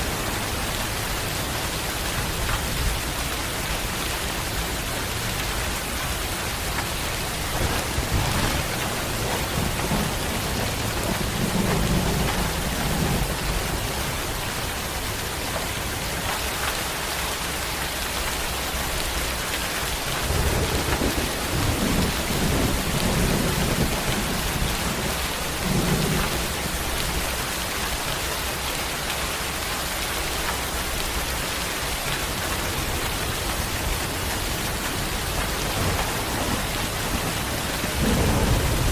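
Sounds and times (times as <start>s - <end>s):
steady rain falling: 0.0s - 38.9s
low thunder rumbling: 4.5s - 15.7s, 19.9s - 27.7s, 32.0s - 38.9s.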